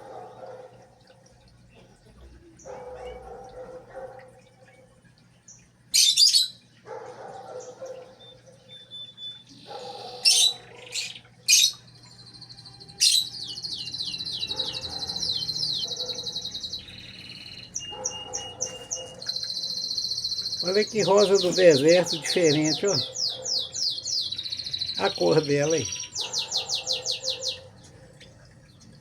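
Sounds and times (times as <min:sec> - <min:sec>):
small birds chirping: 0:01.7 - 0:29.0
fast high bird trill: 0:07.6 - 0:27.7.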